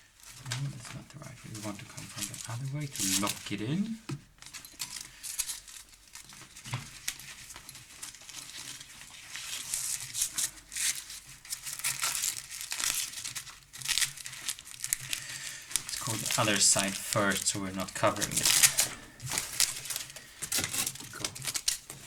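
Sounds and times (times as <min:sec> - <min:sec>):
velcro strap rasping and ripping: 0:09.4 - 0:17.3.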